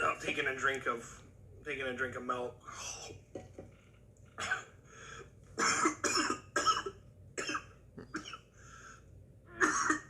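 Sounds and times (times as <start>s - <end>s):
man coughing: 4.4s - 4.7s, 5.6s - 8.4s, 9.6s - 10.0s.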